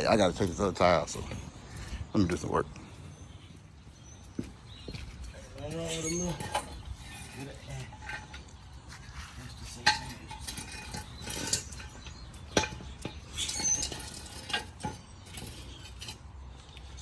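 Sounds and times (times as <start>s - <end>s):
metal tools clanking: 5.3s - 8.7s, 9.5s - 16.2s
short scraping: 8.9s - 16.2s.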